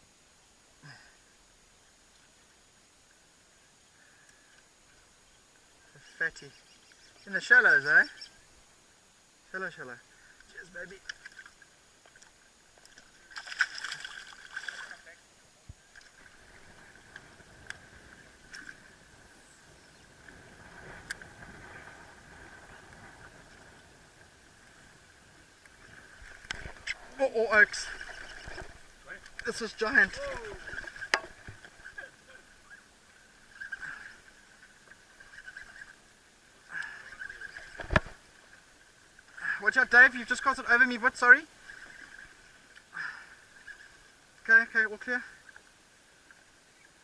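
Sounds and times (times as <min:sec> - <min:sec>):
high chirring animal chorus: 0:26.8 - 0:37.8.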